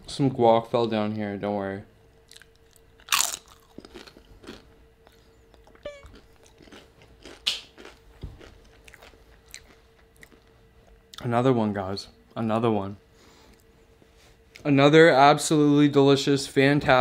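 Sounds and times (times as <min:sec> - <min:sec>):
person chewing crunchy chip: 0:02.3 - 0:10.5.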